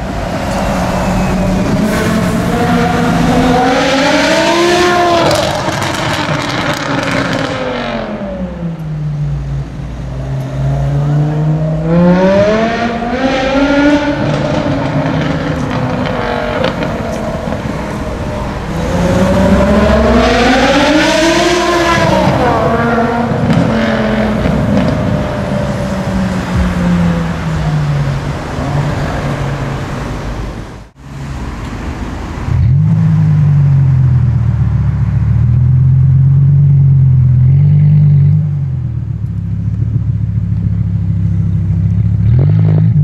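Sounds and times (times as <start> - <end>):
car engine revving: 0.0 - 31.2.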